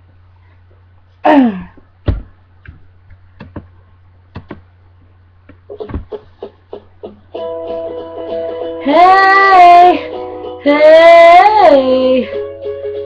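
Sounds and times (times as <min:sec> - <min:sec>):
steady low hum: 0:00.0 - 0:12.6
knocks and taps on ukulele: 0:03.4 - 0:03.7, 0:04.3 - 0:04.7, 0:05.5 - 0:06.9.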